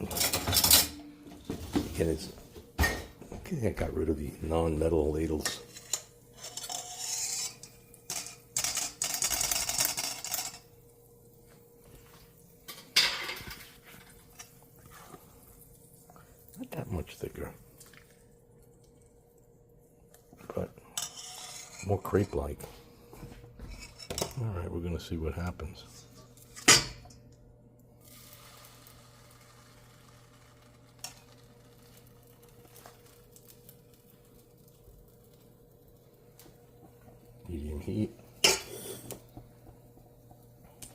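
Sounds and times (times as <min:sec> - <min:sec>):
metal utensils clattering: 0:00.0 - 0:01.1, 0:05.4 - 0:10.6, 0:12.7 - 0:14.6
batter sizzling in a pan: 0:04.4 - 0:17.8, 0:20.9 - 0:22.4, 0:28.0 - 0:40.9.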